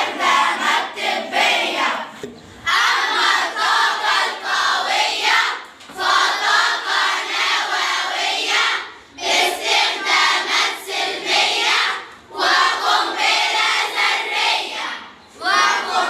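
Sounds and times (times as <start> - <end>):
girls singing in unison: 0.0 - 16.0.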